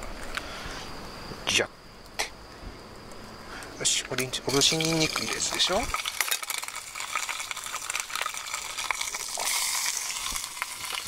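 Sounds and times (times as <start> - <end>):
wood fire crackling: 1.9 - 11.0
oil and garlic sizzling in pot: 3.8 - 11.0.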